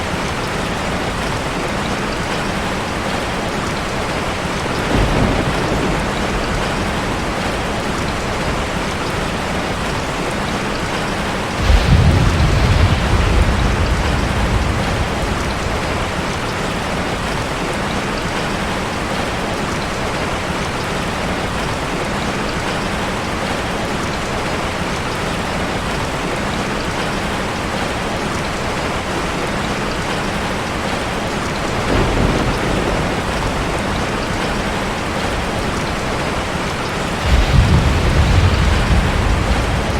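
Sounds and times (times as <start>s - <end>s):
low thunder rumbling: 0.0s - 18.8s, 29.9s - 39.9s
heavy rain drumming on car: 0.0s - 39.9s.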